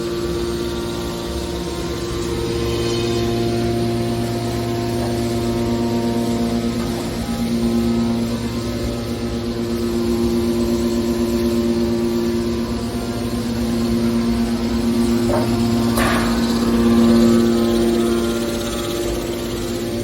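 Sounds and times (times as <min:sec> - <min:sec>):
hydraulic baler pump humming: 0:00.0 - 0:20.0.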